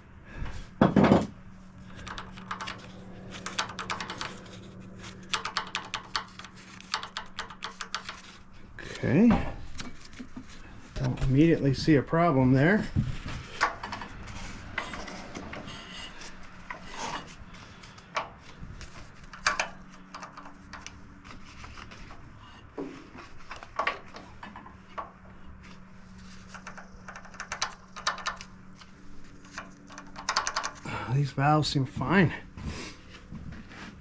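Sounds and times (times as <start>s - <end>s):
tools clicking on metal parts: 1.9s - 8.4s, 19.2s - 21.0s, 26.4s - 30.9s.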